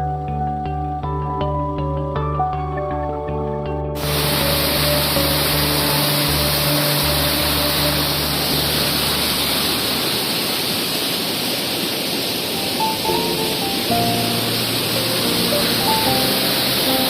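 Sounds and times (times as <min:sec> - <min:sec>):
soft background music: 0:00.0 - 0:10.0, 0:12.6 - 0:17.0
rushing water: 0:04.0 - 0:17.0.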